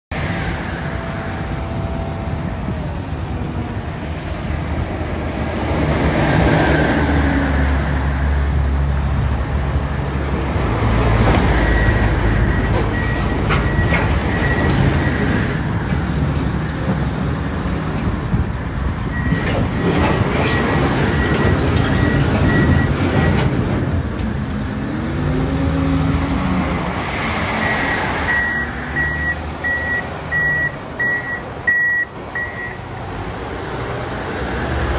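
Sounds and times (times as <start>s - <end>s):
heavy machinery diesel engines: 0.1s - 34.9s
reversing alarm beeping: 11.4s - 15.7s, 19.1s - 23.4s, 27.6s - 32.9s.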